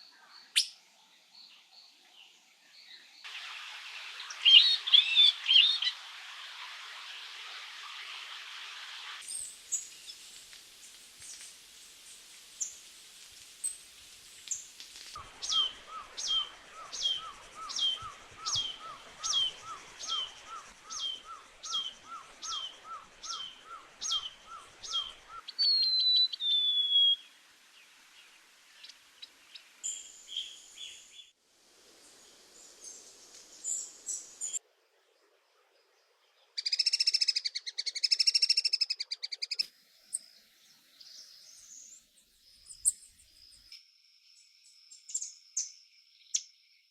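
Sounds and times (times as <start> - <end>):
thin high bird calls: 14.5 - 27.4
falling bird whistle: 15.4 - 27.3.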